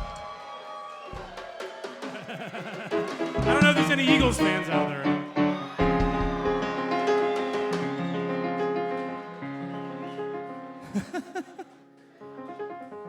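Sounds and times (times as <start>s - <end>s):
keyboard chords: 3.0s - 5.8s.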